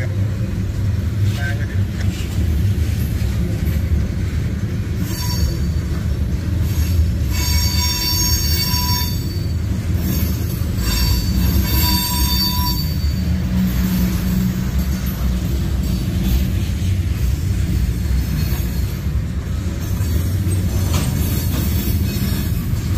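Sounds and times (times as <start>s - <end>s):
freight train rumbling past: 0.0s - 22.9s
steel wheels squealing: 4.6s - 22.9s.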